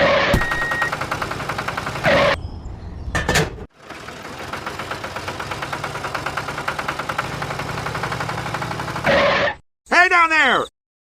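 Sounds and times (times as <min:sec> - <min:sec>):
engine running with rattle: 0:00.4 - 0:02.4, 0:03.2 - 0:09.5.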